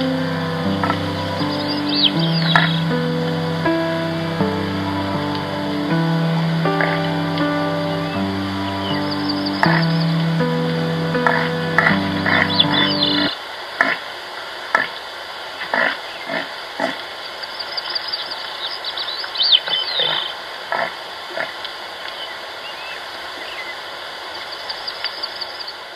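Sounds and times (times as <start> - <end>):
high chirps: 0.0 - 13.3
music: 0.0 - 13.3.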